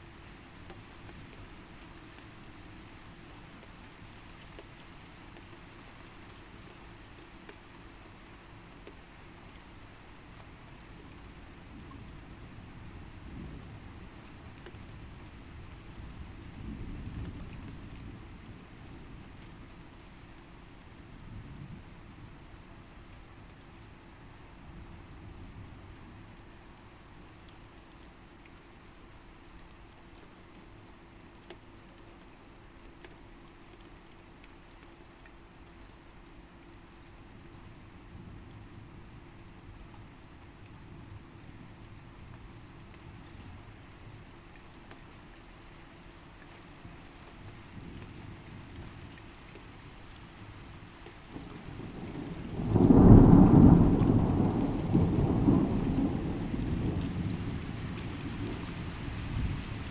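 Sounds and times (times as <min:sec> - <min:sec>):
faint steady hum: 0:00.0 - 0:59.9
light rain hiss: 0:00.0 - 0:59.9
raindrops ticking on hard surface: 0:00.0 - 0:59.9
thunderclap rumble: 0:51.4 - 0:59.9.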